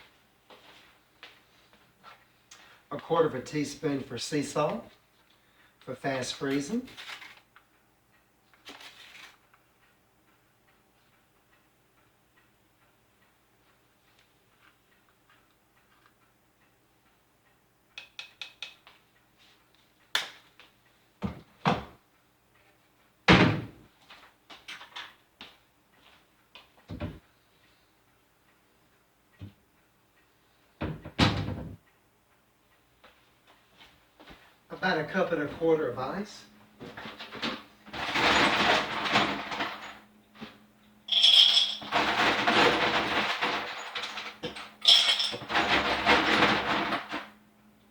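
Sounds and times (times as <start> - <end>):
ice cubes clattering into blender: 41.1 - 47.3.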